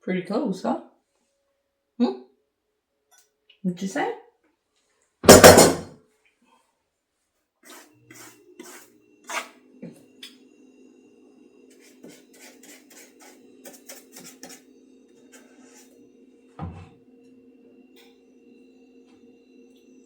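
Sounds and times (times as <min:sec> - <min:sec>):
heavier knock: 0:05.3 - 0:05.8.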